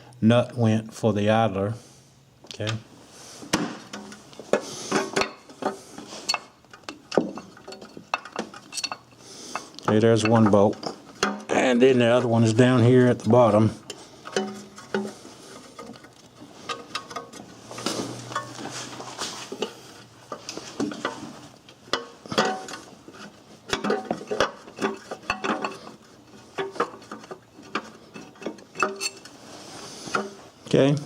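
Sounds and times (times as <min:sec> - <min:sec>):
hand tools clinking on metal: 0:05.1 - 0:11.6, 0:23.7 - 0:26.0, 0:26.6 - 0:29.4.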